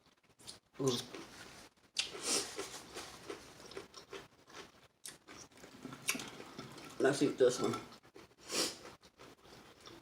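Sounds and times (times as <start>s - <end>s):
crunchy chewing: 2.0s - 7.0s.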